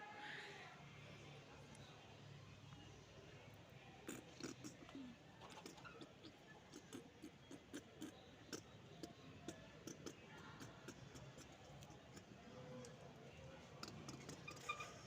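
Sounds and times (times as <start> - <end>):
birds pecking and clicking: 5.4 - 13.1, 13.7 - 15.0.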